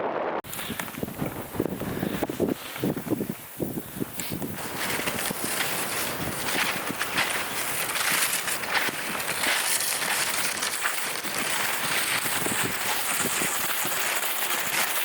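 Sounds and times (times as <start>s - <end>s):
wind on microphone: 0.0s - 15.0s
footsteps crunching through snow: 0.5s - 15.0s.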